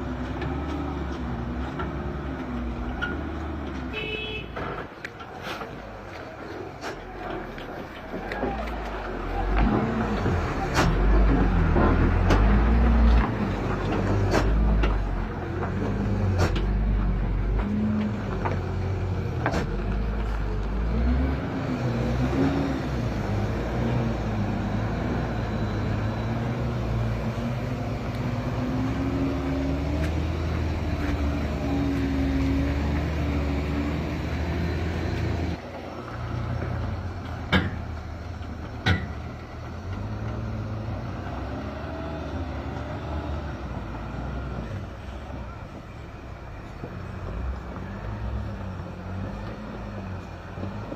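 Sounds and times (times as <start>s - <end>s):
truck engine revving: 0.0s - 3.9s, 5.3s - 50.9s.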